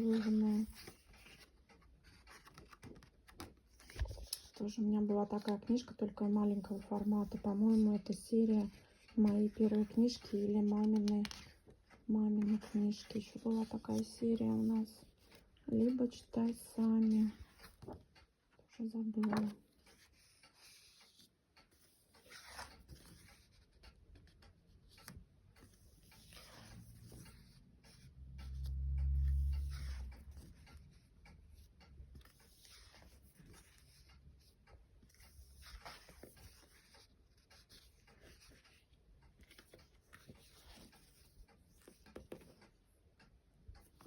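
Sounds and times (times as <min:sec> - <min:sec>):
book pages turning: 0:00.0 - 0:18.2, 0:19.0 - 0:31.1, 0:32.1 - 0:42.8
faint clicks: 0:12.6 - 0:44.0.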